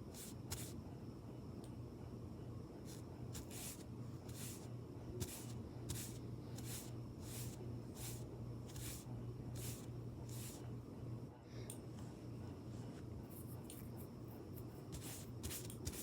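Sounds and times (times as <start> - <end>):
low steady hum: 0.0 - 16.0
soft hissy makeup brush strokes: 0.1 - 0.8, 2.8 - 10.7, 12.0 - 16.0.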